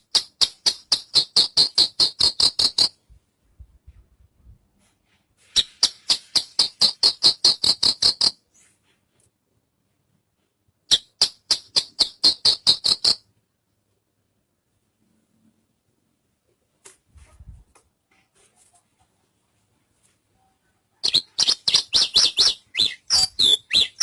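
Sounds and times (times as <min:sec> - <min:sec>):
bird singing rapid trills: 0:21.0 - 0:24.0.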